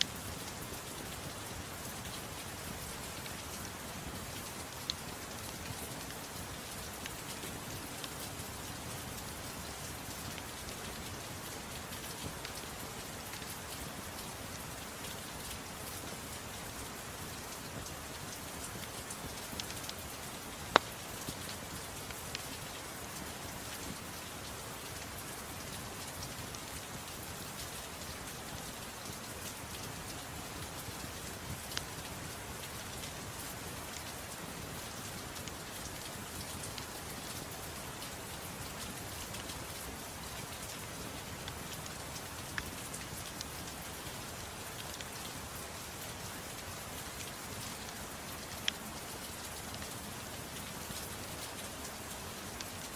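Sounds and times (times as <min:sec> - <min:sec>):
rain hiss: 0:00.0 - 0:52.9
wood fire crackling: 0:17.7 - 0:22.6.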